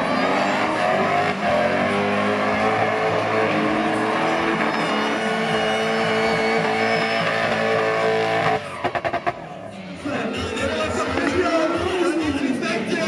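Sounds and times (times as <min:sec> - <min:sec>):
car engines revving: 0:00.0 - 0:13.0
music playing: 0:09.7 - 0:13.0.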